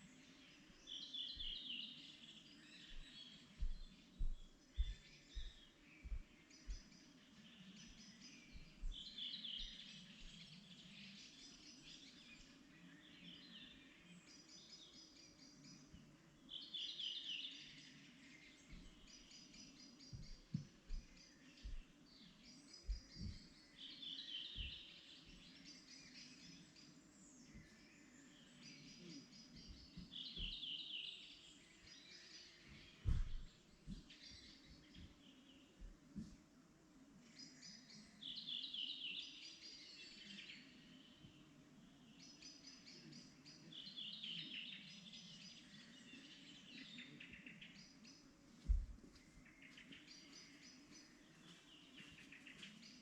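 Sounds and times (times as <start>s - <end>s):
small birds chirping: 0.0s - 53.0s
low thumps: 33.0s - 34.1s.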